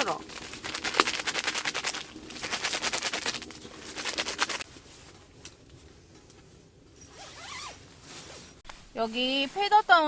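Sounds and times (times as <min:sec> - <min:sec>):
hand-warmer packets rustling: 0:00.0 - 0:05.2.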